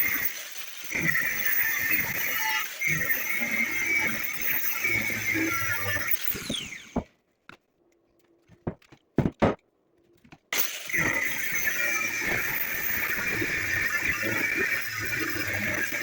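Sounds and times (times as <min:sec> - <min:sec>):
power tool whining: 0:00.0 - 0:07.1, 0:10.5 - 0:16.0
sharp knocks: 0:08.6 - 0:09.6.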